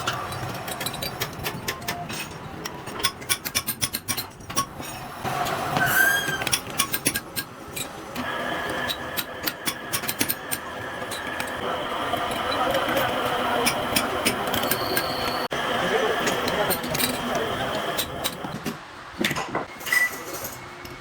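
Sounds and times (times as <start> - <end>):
machinery clicks and knocks: 0.0 - 15.5
brief machine squeal: 5.8 - 6.6, 14.6 - 15.5, 19.7 - 20.8
steady machine whine: 8.1 - 18.5.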